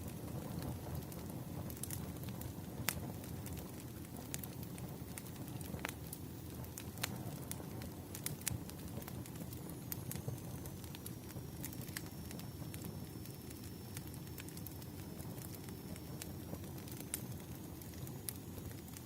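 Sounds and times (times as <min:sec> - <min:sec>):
wood fire crackling: 0:00.0 - 0:19.0
faint high whine: 0:06.2 - 0:19.0.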